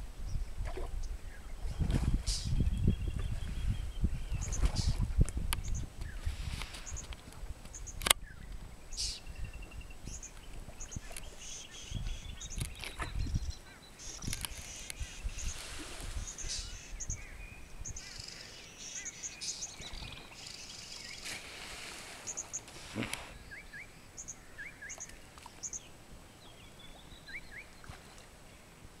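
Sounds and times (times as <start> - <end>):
steady outdoor hiss: 0.0 - 29.0
birds chirping: 5.6 - 28.2.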